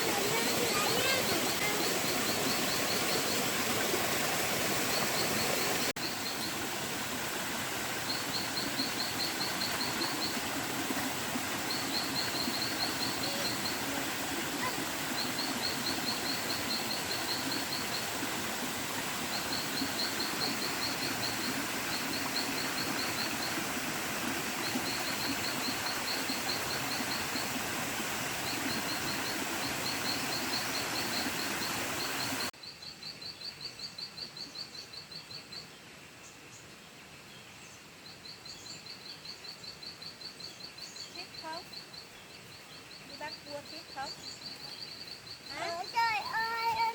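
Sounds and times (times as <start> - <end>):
steady rushing hiss: 0.0 - 32.5.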